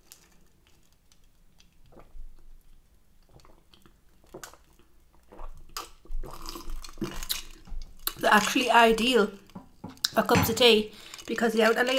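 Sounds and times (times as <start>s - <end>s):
chewing and wet mouth noises: 1.6s - 8.6s.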